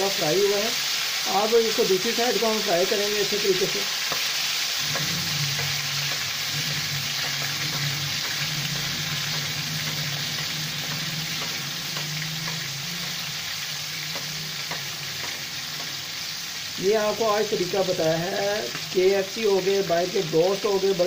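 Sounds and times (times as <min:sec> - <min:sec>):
chicken sizzling in hot oil: 0:00.0 - 0:21.0
metal spatula taps: 0:04.1 - 0:04.3, 0:07.2 - 0:13.3.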